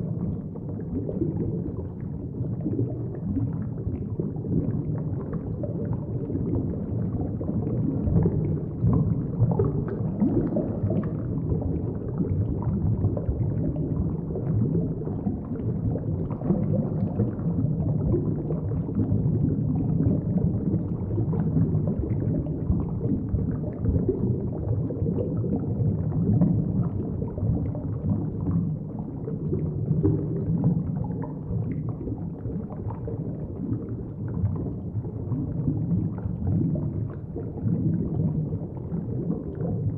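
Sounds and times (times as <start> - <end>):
muffled underwater water rumble: 0.0 - 39.9.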